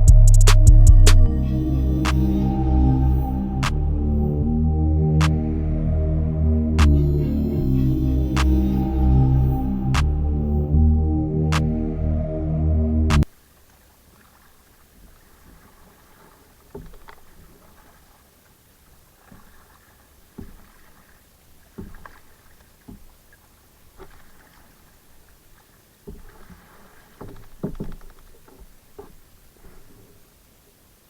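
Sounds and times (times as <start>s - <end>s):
paddle splashes and hull knocks: 13.2s - 30.6s.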